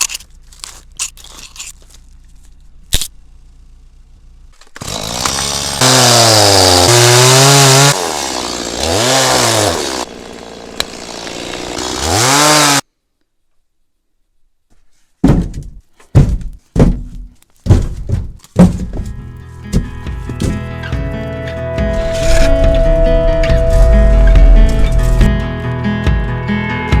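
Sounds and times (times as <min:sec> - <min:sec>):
chainsaw engine revving: 0:04.8 - 0:12.8.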